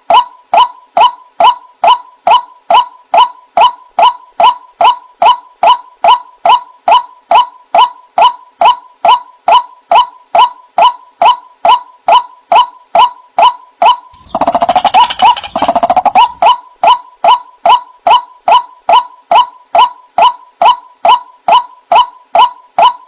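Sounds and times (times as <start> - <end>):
waterhen calling: 14.2 - 16.6.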